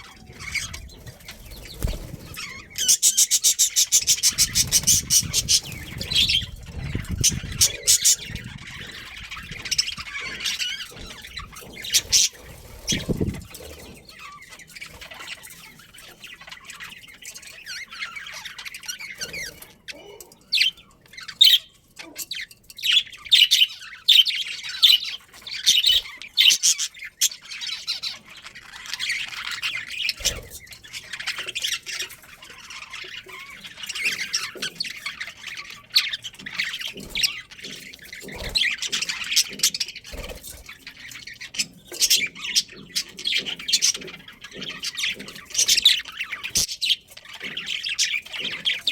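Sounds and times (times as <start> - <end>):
bird squawks: 0.0 - 15.4
budgerigars chirping and chattering: 0.0 - 48.9.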